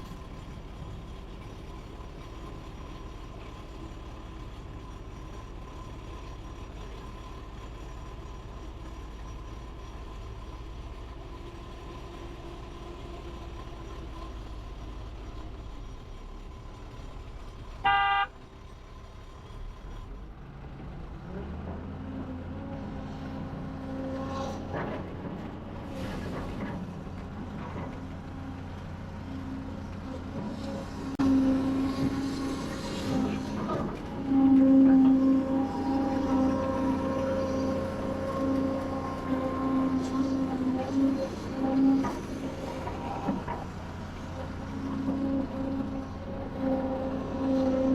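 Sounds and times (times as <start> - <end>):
heavy machinery diesel engines: 0.0 - 47.9
horn blast: 17.8 - 18.3.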